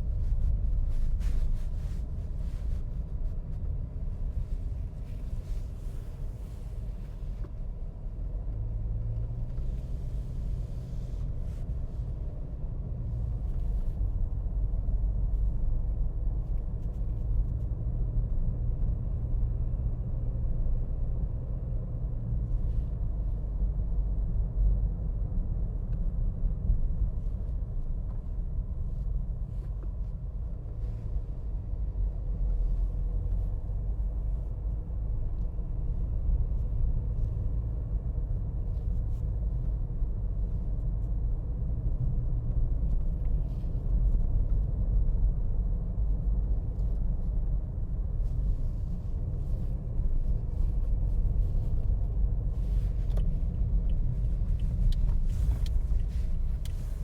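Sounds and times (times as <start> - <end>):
low vehicle rumble: 0.0 - 57.0.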